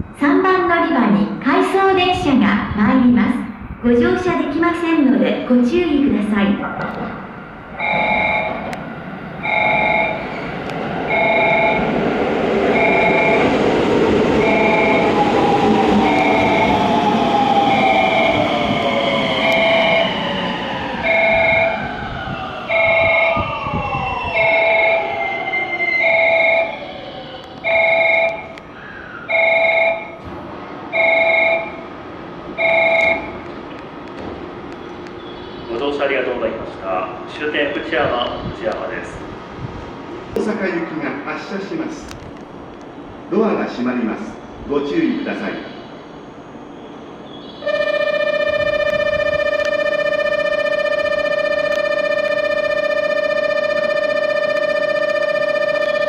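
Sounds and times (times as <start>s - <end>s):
electronic warning chime: 7.8s - 8.7s, 9.4s - 10.3s, 11.1s - 11.8s, 12.7s - 13.6s, 14.4s - 15.2s, 16.0s - 16.9s, 19.4s - 20.2s, 21.0s - 21.8s, 22.7s - 23.5s, 25.8s - 26.8s, 27.6s - 28.5s, 29.3s - 30.2s, 30.9s - 31.8s, 32.6s - 33.4s, 47.6s - 56.0s
electric train motor whine: 14.4s - 25.4s, 47.6s - 56.0s.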